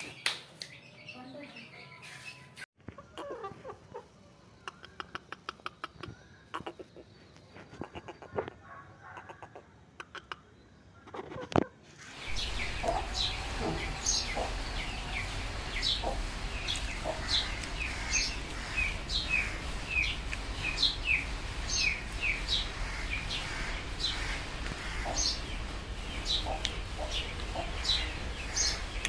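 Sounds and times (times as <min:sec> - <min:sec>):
birds chirping: 0:12.1 - 0:29.0
steady low hum: 0:12.2 - 0:29.0.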